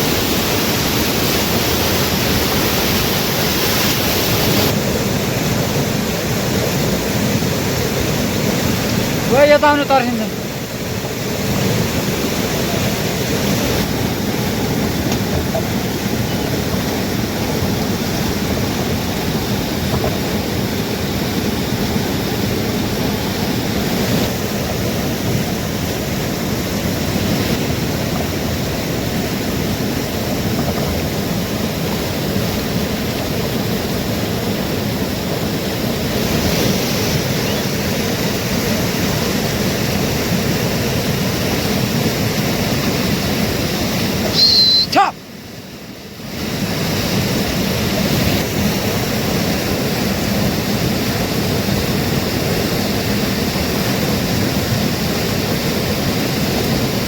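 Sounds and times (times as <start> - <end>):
river rushing: 0.0 - 57.0.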